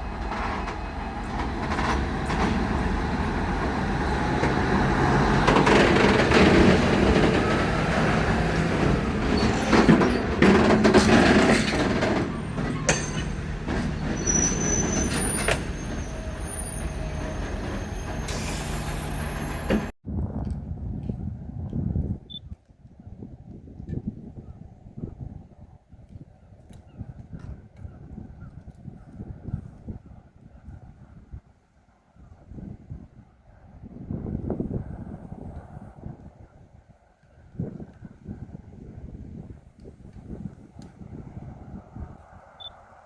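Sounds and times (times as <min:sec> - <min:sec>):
freight train rolling on track: 0:00.0 - 0:20.0
high-pitched wheel squeals: 0:12.2 - 0:19.9.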